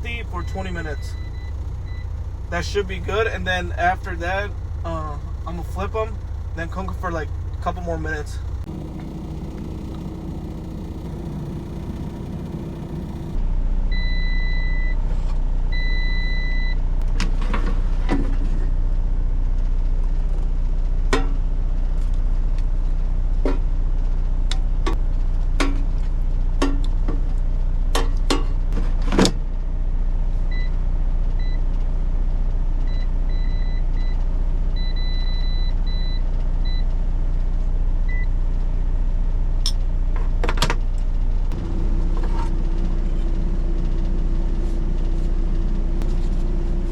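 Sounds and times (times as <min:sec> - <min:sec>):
electronic beeps: 0:00.0 - 0:05.8
air fryer fan hum: 0:00.0 - 0:13.4, 0:41.5 - 0:46.9.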